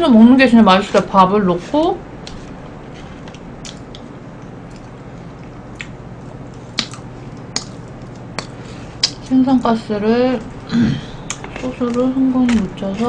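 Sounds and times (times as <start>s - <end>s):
wet chewing: 2.2s - 9.3s
sharp mouth clicks: 5.7s - 6.0s, 6.7s - 9.2s.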